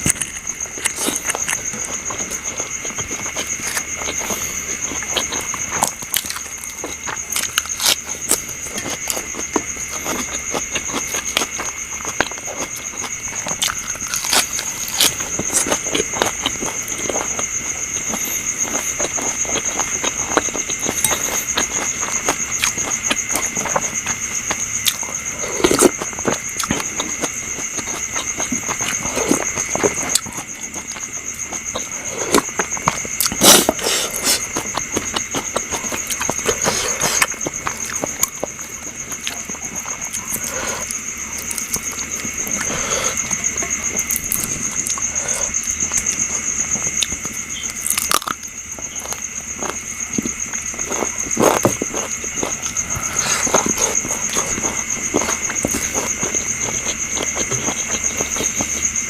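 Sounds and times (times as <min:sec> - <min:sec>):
insects chirring: 0:00.0 - 0:59.0
person chewing and lip smacking: 0:00.0 - 0:59.0.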